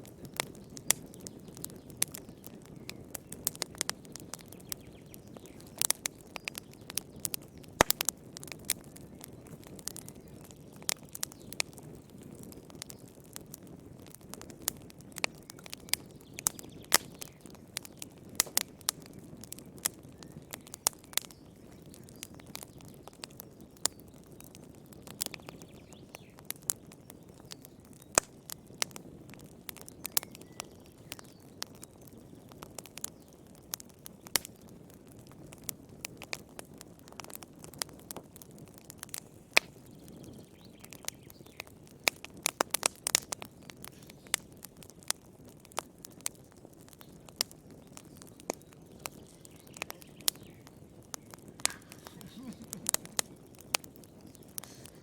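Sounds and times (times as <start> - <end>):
fire crackling and popping: 0.0 - 55.0
fire flame rushing: 41.8 - 55.0.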